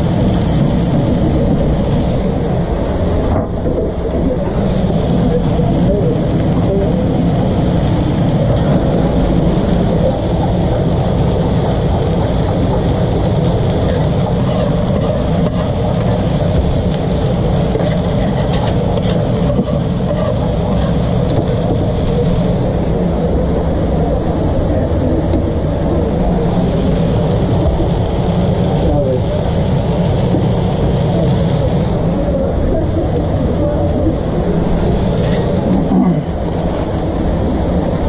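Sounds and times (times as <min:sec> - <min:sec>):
loud mechanical drone: 0:00.0 - 0:38.0.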